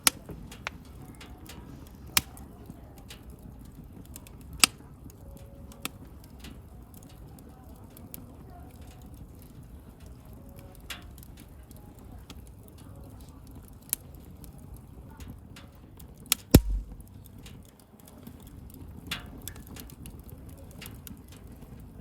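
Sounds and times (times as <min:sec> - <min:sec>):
campfire crackling: 0:00.0 - 0:22.0
low rumble of burning fire: 0:00.0 - 0:22.0
loud fire pop: 0:16.6 - 0:17.1.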